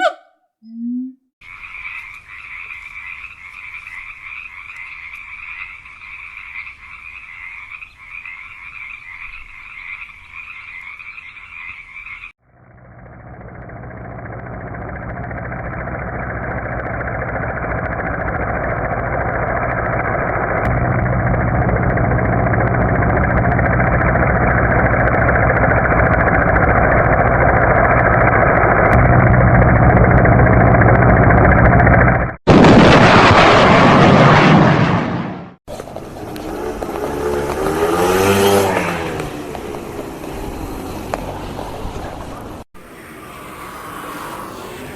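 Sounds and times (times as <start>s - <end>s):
frogs croaking: 1.4s - 12.4s
vehicle engine and road noise: 12.0s - 32.4s, 35.7s - 44.9s.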